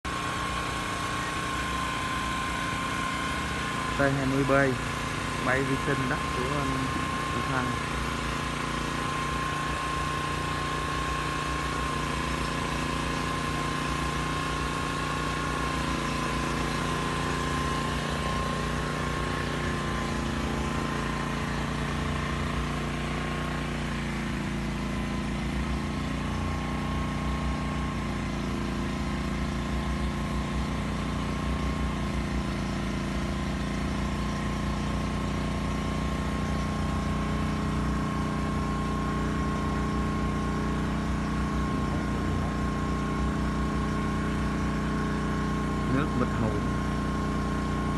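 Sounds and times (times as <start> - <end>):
drone rotors whining: 0.0 - 47.9.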